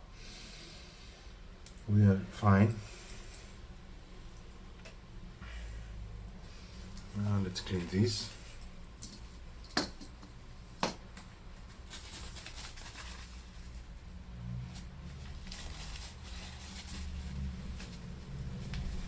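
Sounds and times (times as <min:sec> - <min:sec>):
low steady hum: 0:00.0 - 0:19.0
light rubbing of cloth: 0:11.5 - 0:19.0.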